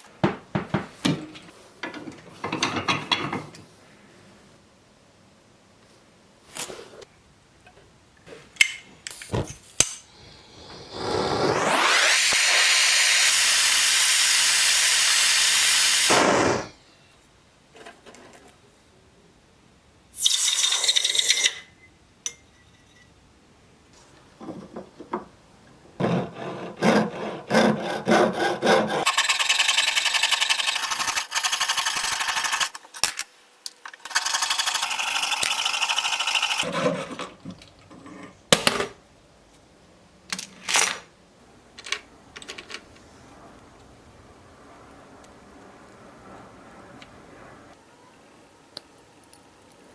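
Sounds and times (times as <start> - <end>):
small power tool running: 10.6 - 16.7, 29.0 - 32.8, 34.1 - 36.6.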